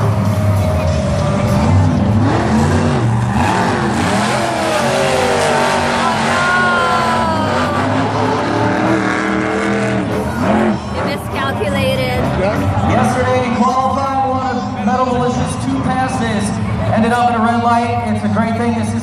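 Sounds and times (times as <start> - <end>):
monster truck engines revving: 0.0 - 19.0.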